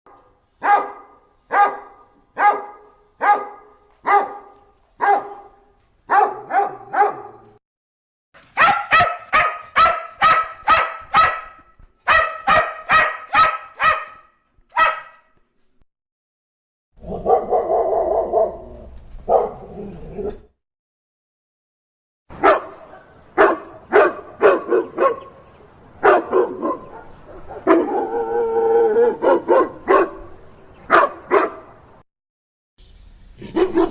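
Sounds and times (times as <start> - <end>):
dog barking: 0.1 - 7.6, 8.6 - 15.3, 17.0 - 18.6, 19.2 - 20.4, 22.4 - 25.3, 26.0 - 30.3, 30.9 - 31.8, 33.4 - 33.9.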